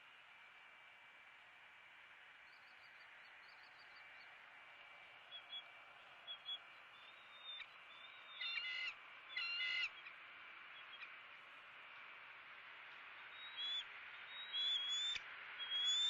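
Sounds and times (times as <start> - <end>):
bird chirps and calls: 6.3 - 10.2, 13.2 - 16.0.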